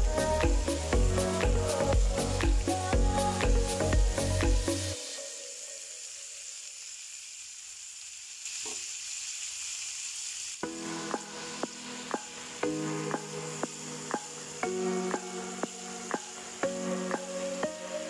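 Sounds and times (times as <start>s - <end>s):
background music with a beat: 0.0s - 5.1s, 10.6s - 18.0s
pork chops sizzling in a pan: 5.3s - 18.0s.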